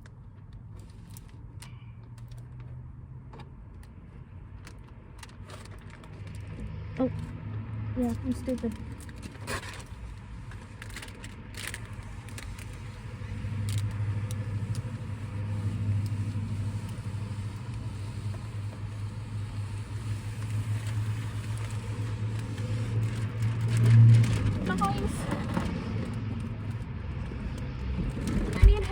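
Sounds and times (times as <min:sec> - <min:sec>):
light clicks and rustles: 0:00.0 - 0:15.0
low motor hum: 0:10.0 - 0:28.9.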